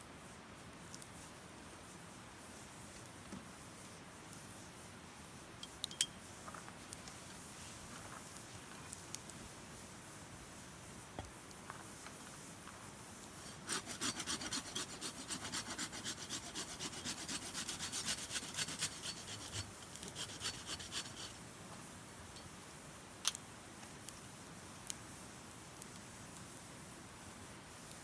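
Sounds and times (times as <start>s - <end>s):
hand tool strokes on wood: 13.3s - 21.4s.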